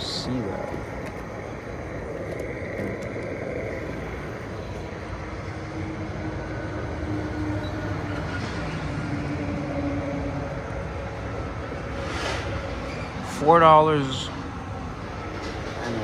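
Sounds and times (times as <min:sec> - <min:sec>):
fuel dispenser humming: 0:00.0 - 0:07.8.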